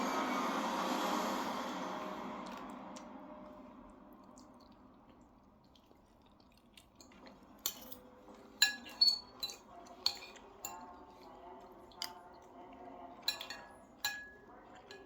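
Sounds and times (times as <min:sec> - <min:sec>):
cutlery clinking on plates: 0:07.1 - 0:11.2, 0:13.2 - 0:15.0.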